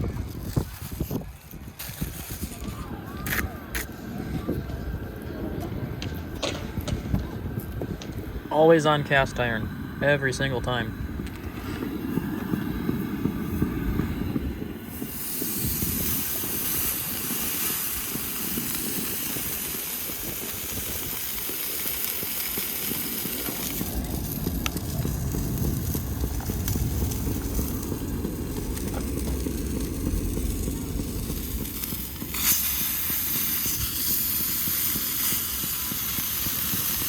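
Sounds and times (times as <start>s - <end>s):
steady low rumble: 0.0s - 21.4s, 22.2s - 37.0s
steak sizzling in a pan: 14.9s - 37.0s.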